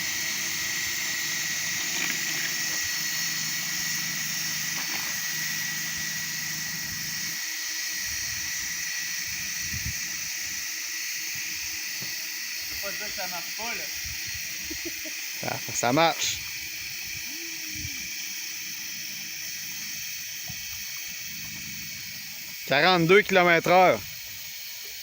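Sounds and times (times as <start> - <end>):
motor driving propeller whine: 0.0 - 25.0.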